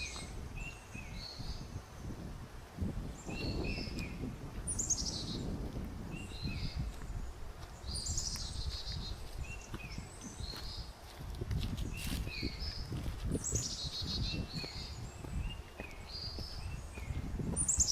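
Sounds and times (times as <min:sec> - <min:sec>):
footsteps on forest trail: 0:00.0 - 0:01.4, 0:02.6 - 0:17.9
birds whistling: 0:03.2 - 0:05.4, 0:13.4 - 0:17.9.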